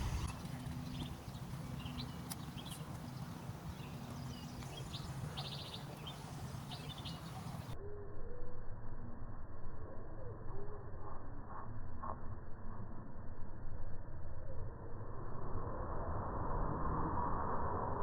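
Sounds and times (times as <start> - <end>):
steady low rumble: 0.0 - 2.1, 10.9 - 18.0
birds chirping: 0.0 - 7.8.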